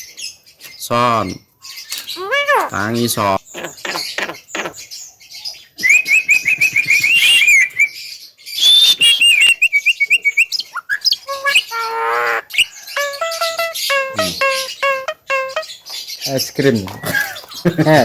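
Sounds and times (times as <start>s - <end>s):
myna calling: 2.1s - 4.8s, 11.3s - 15.7s.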